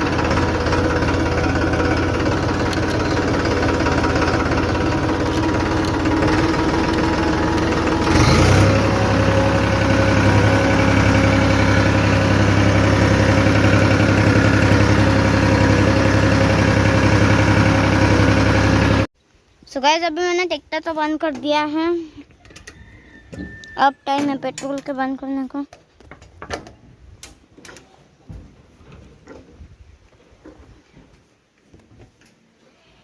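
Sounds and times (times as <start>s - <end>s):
tractor engine running: 0.0s - 19.1s.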